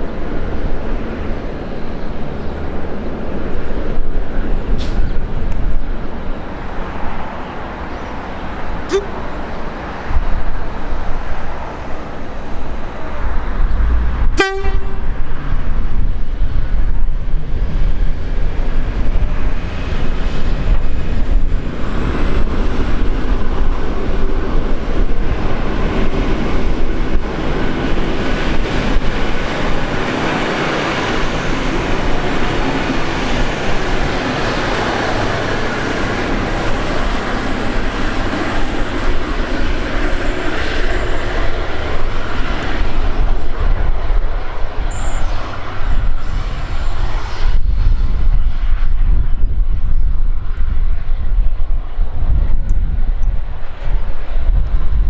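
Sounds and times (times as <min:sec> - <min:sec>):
train wheels rumbling: 0:00.0 - 0:55.0
train horn toot: 0:08.9 - 0:09.3, 0:14.4 - 0:15.2
thin high whine: 0:29.3 - 0:48.6.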